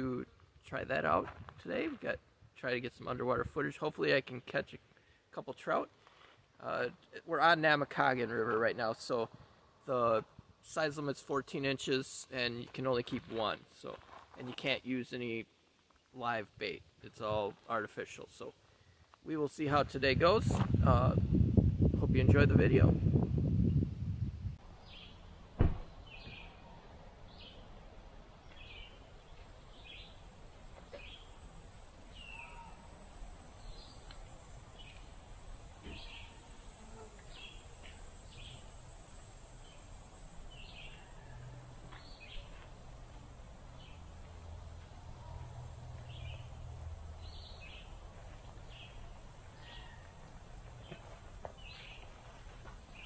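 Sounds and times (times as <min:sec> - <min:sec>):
bird chirping: 0:24.6 - 0:27.7, 0:28.4 - 0:42.6, 0:47.2 - 0:50.0, 0:50.8 - 0:52.1
sharp thump: 0:25.5 - 0:26.5
insect trill: 0:28.8 - 0:42.4.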